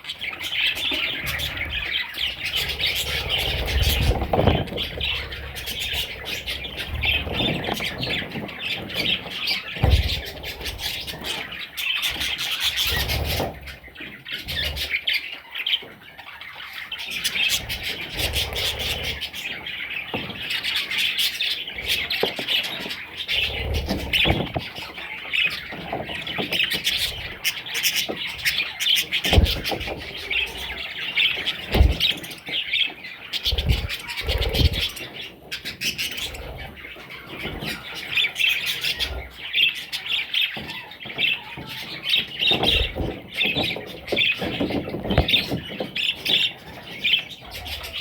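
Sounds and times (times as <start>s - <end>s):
bird chicks chirping and squawking: 0.0s - 48.0s
soft bumps and rustles: 1.3s - 13.8s, 21.9s - 36.4s.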